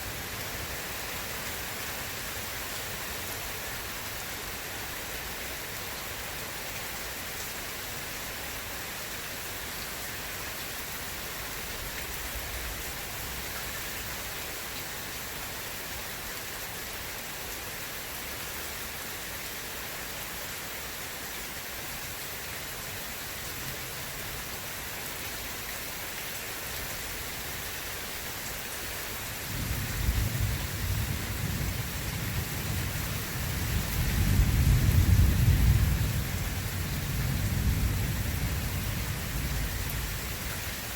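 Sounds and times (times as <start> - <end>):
steady rain hissing: 0.0 - 40.9
thunder rumbling: 29.5 - 40.1.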